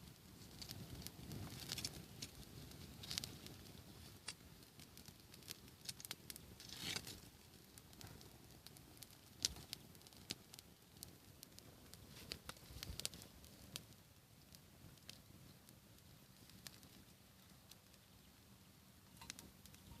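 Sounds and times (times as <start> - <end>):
campfire crackling: 0.0 - 20.0.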